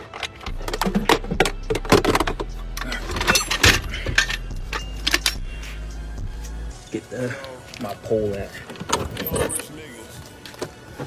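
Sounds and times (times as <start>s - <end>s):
loose items clattering: 0.0s - 5.4s.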